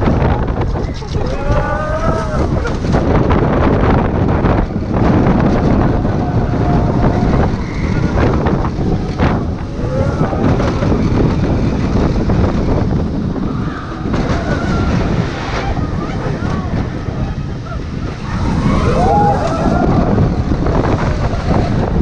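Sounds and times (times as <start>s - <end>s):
roller coaster train rumbling: 0.0s - 22.0s
wind buffeting microphone: 0.0s - 22.0s
rider yelling: 1.2s - 2.7s.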